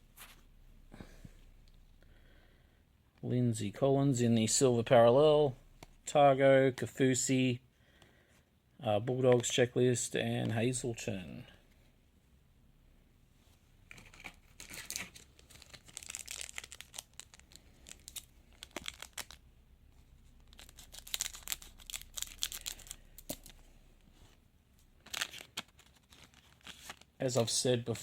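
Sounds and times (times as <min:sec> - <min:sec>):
card pack wrapper tearing: 0:13.9 - 0:19.4, 0:20.3 - 0:23.6, 0:25.0 - 0:27.2.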